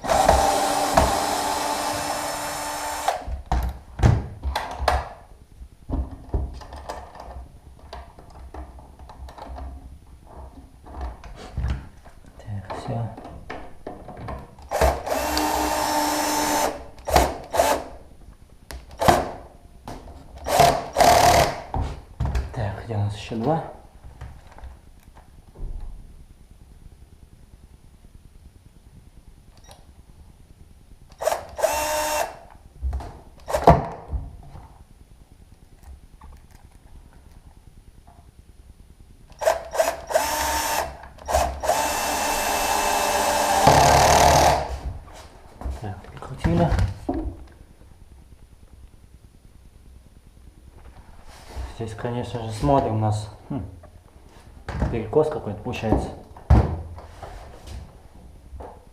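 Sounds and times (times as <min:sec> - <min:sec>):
drill driving screw into wood: 0:00.0 - 0:03.4, 0:14.7 - 0:17.9, 0:18.9 - 0:19.4, 0:20.4 - 0:21.7, 0:31.1 - 0:32.5, 0:33.4 - 0:33.8, 0:39.4 - 0:44.8.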